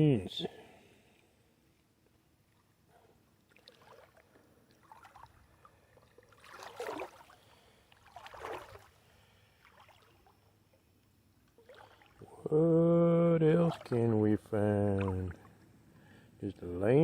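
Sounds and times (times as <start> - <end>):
river water sloshing and splashing: 3.4 - 10.4, 11.5 - 12.4, 13.5 - 15.7.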